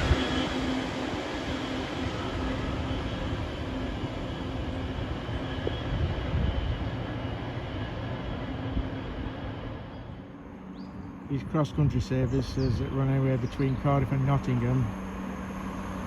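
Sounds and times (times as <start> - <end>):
low hum: 0.0 - 16.0
train rail running noise: 0.0 - 16.0.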